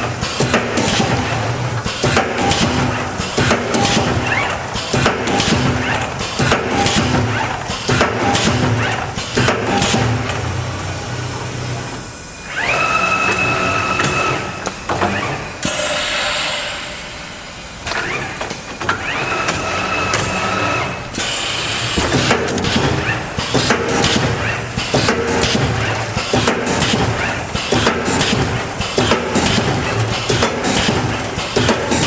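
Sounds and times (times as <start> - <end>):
machine clanks and knocks: 0.0 - 10.6, 13.2 - 32.0
motor whine: 10.5 - 21.9.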